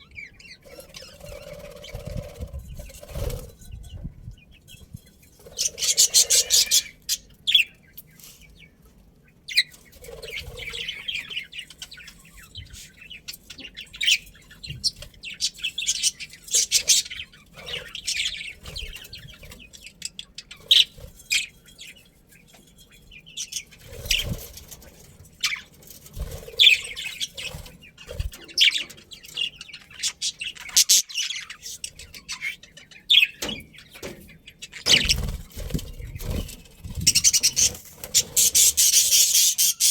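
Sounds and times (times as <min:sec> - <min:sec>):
budgerigars chirping: 0:05.5 - 0:07.8, 0:26.5 - 0:35.8, 0:37.0 - 0:39.9.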